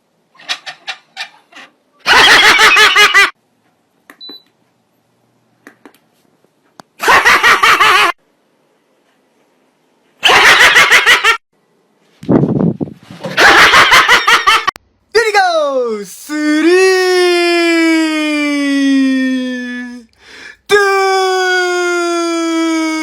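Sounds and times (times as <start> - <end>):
high-pitched laughter: 2.0 - 3.4, 10.2 - 11.4.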